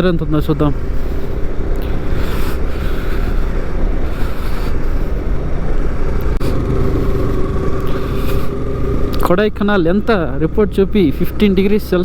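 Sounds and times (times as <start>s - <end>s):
motorcycle engine running: 5.4s - 11.0s.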